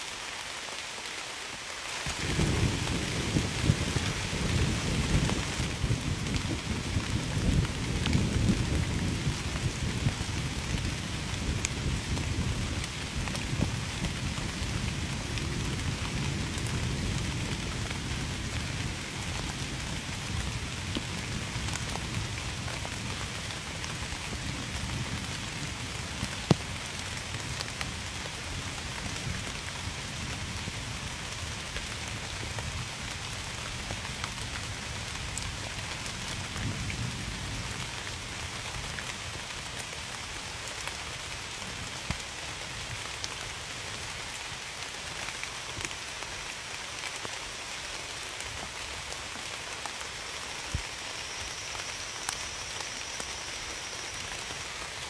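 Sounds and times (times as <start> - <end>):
steady rain: 0.0 - 55.0
low thunder rumble: 2.1 - 23.1.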